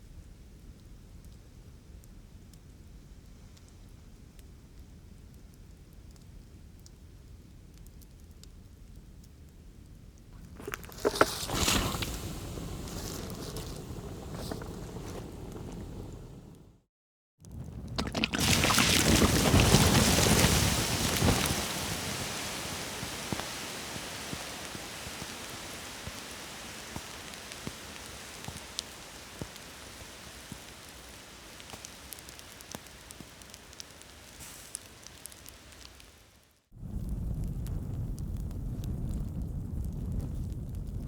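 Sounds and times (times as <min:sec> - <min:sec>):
wood fire crackling: 0:00.6 - 0:41.0
sharp pops of fire: 0:10.4 - 0:16.8, 0:17.5 - 0:41.0
fire rushing surge: 0:11.3 - 0:16.7.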